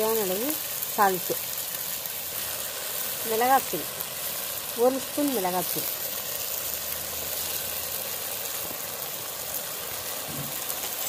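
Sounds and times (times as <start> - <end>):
masala sizzling in hot oil: 0.0 - 11.0.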